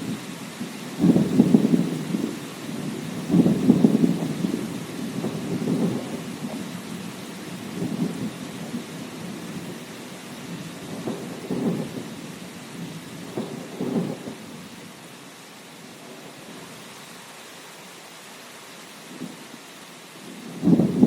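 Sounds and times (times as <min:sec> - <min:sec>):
steady rain: 0:00.0 - 0:21.0
rolling thunder: 0:01.0 - 0:06.7, 0:07.5 - 0:09.8, 0:10.5 - 0:12.2, 0:12.8 - 0:14.6, 0:20.3 - 0:21.0.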